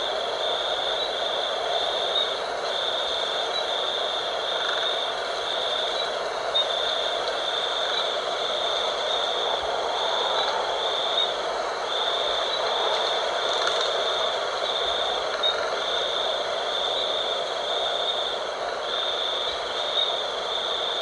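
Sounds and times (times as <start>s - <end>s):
wind rushing: 8.2s - 15.7s.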